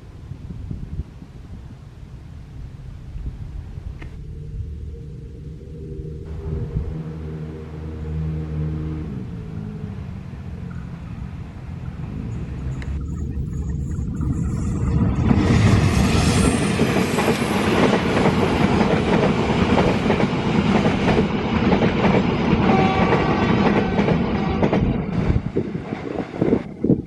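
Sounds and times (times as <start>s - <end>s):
train passing close by: 6.3s - 13.1s, 14.2s - 27.0s
wheels clattering on rails: 15.0s - 26.6s.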